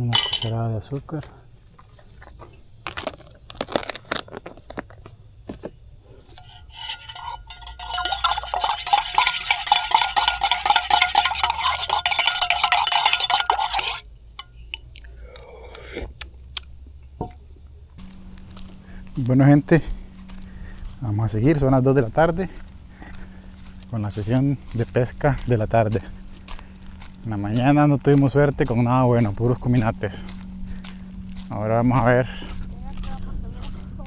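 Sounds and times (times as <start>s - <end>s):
spoon clinking in a cup: 0.0s - 0.6s, 6.3s - 15.5s
insects chirping: 0.0s - 34.0s.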